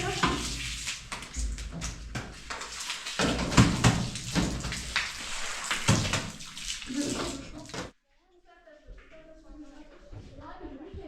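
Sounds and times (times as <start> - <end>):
water splashing: 0.0 - 8.0.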